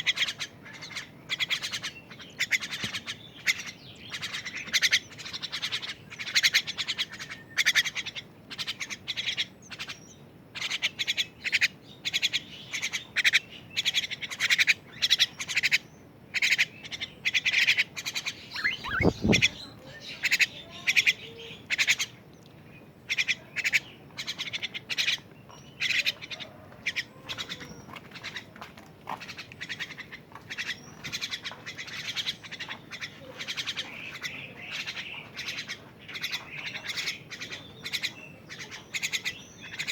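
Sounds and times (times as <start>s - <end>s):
bird chick chirping: 0.1s - 22.1s.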